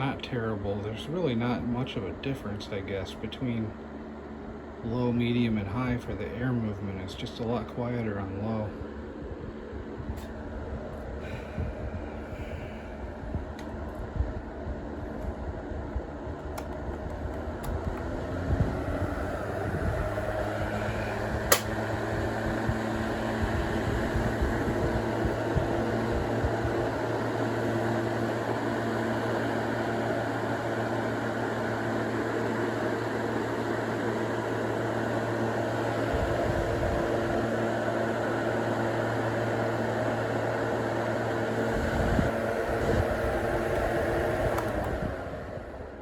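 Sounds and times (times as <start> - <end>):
table fan running: 0.0 - 46.0
sharp click: 21.5 - 21.8.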